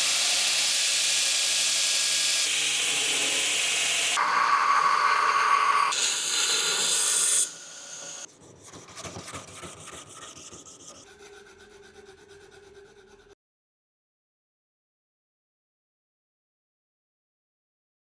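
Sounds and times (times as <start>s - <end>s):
rasping on steel blade: 4.2s - 13.4s.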